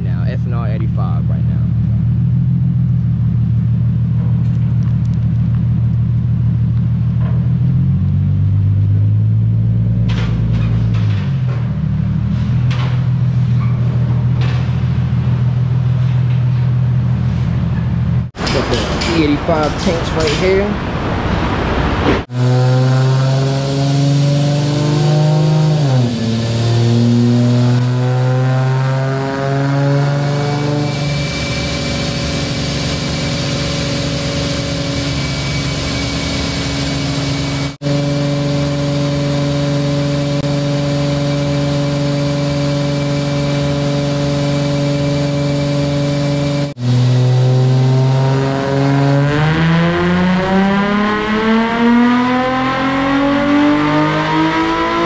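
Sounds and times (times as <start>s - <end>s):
loud car engine exhaust revving: 0.0s - 55.0s.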